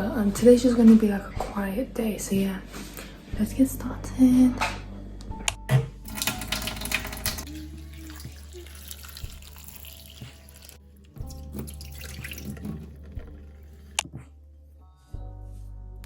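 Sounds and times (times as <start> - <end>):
tap water running into sink: 6.0 - 14.0.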